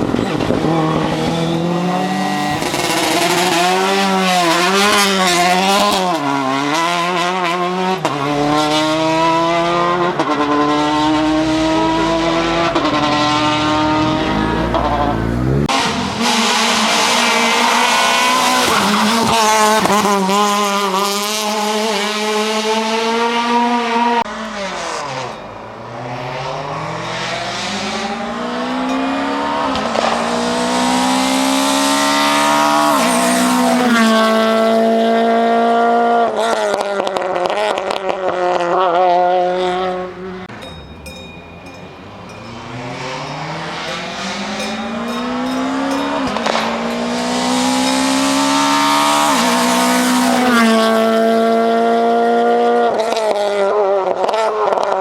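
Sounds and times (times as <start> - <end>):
rally car engine screaming: 0.0 - 40.6, 42.3 - 55.0.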